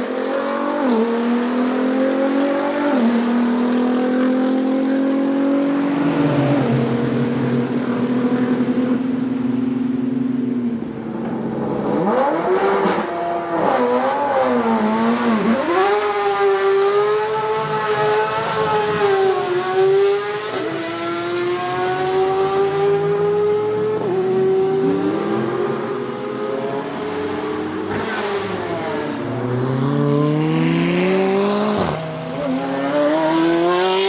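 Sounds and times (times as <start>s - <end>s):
car engine revving: 10.7s - 34.0s.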